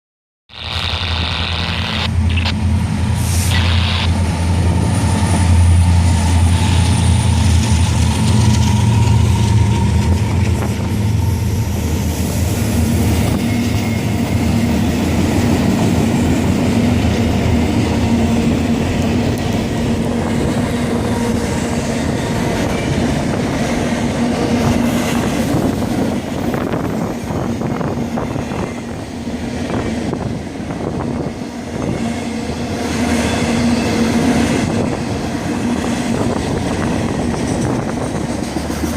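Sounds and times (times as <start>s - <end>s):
diesel locomotive engine running: 0.6s - 38.9s
train wheels clacking over rail joints: 5.9s - 11.3s.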